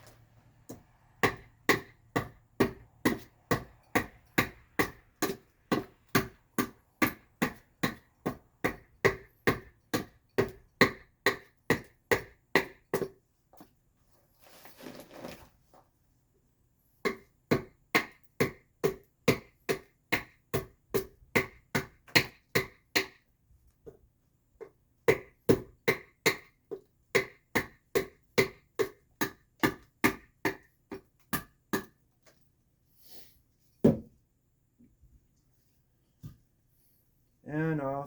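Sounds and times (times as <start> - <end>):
adze chopping wood: 1.2 - 13.2, 17.0 - 23.2, 27.2 - 31.9.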